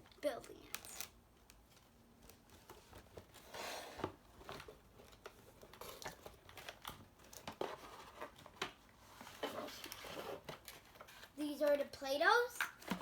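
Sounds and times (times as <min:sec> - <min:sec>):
plastic packaging crinkling: 0:00.4 - 0:03.4.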